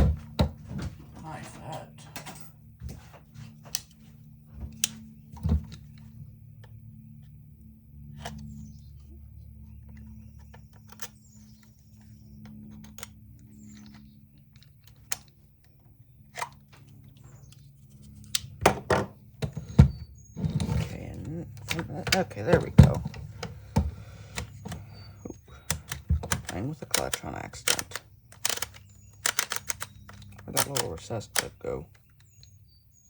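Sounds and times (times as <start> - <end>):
clicks and knocks on plastic housing: 18.4 - 32.6
plastic housing rattling: 18.6 - 32.5.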